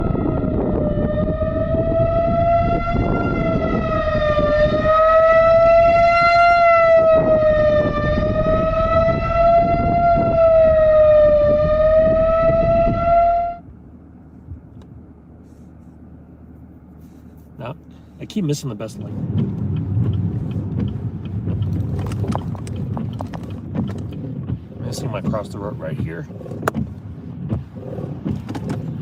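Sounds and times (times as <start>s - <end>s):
warning siren wavering tone: 0.0s - 13.8s.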